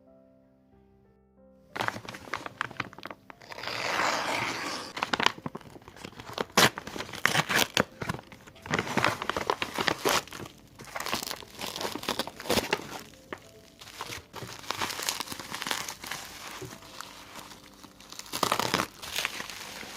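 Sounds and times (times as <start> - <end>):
plastic crinkling and crackling: 1.8 - 19.9
plastic tearing: 1.8 - 19.9.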